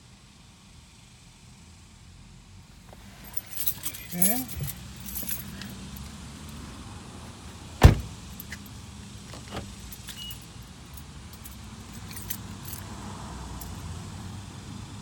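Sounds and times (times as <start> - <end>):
loud thump inside car: 7.8 - 8.2.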